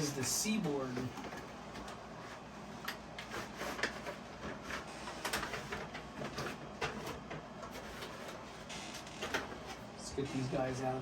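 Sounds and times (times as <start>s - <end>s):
packaging handling clicks and scrapes: 2.8s - 8.4s.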